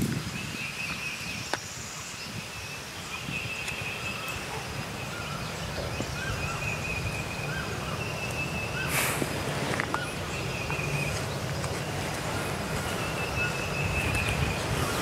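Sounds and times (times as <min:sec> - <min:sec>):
bird chirps: 0:00.1 - 0:15.0
bird trilling: 0:03.1 - 0:15.0.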